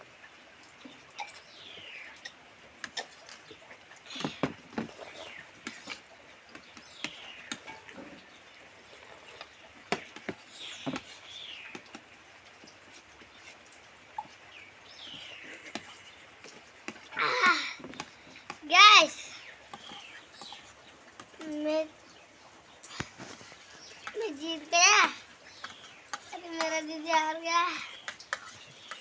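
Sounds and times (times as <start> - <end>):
chewing and slurping: 2.2 - 11.4.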